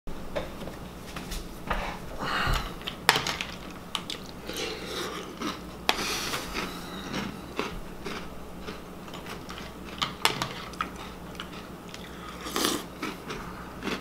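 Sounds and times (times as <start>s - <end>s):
chewing crunchy cereal: 2.8s - 14.0s.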